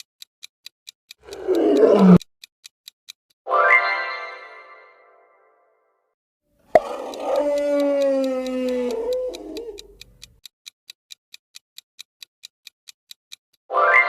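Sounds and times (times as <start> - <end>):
clock ticking: 0.0 - 3.5, 6.6 - 13.7
dog howling: 1.3 - 2.2, 6.8 - 10.0.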